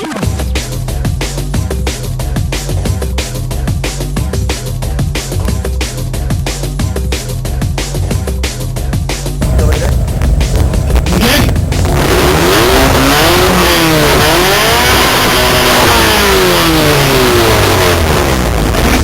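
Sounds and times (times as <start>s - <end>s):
car engine revving: 9.4s - 19.0s.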